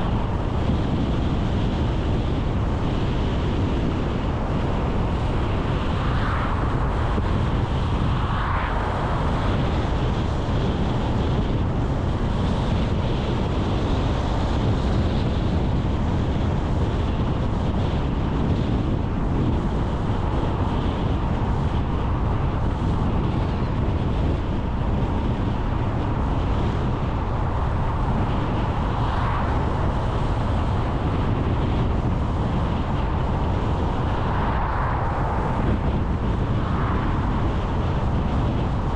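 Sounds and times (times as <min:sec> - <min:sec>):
car engine and tyre rumble: 0:00.0 - 0:38.9
wind noise on microphone: 0:00.0 - 0:38.9.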